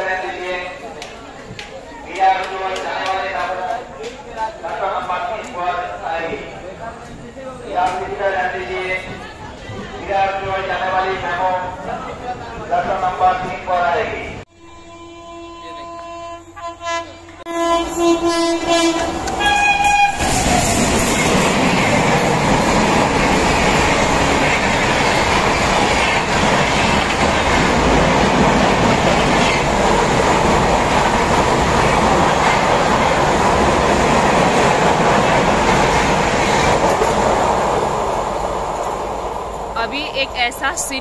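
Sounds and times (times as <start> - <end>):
train rushing and rattling past: 0.0 - 15.1, 16.0 - 41.0
train horn: 14.5 - 20.4.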